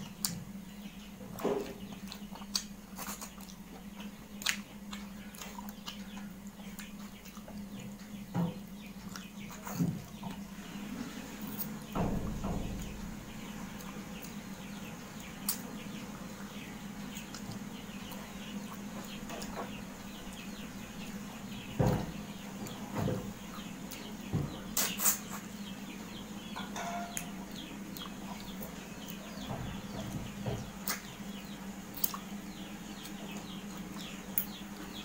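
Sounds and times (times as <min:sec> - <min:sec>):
small birds chirping: 0:00.0 - 0:35.0
steady low hum: 0:00.0 - 0:35.0
chewing and mouth sounds: 0:01.6 - 0:08.2, 0:30.8 - 0:31.1, 0:31.9 - 0:32.4.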